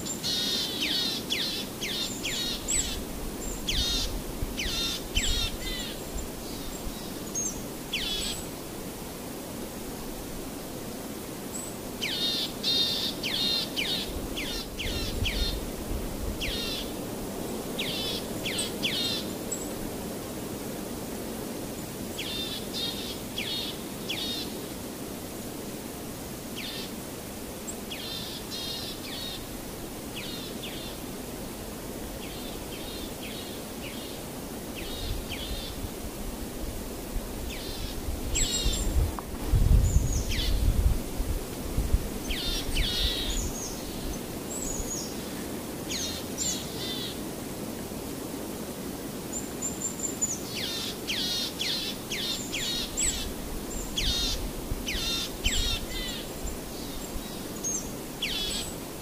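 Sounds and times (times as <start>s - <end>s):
steady hiss: 0.0s - 59.0s.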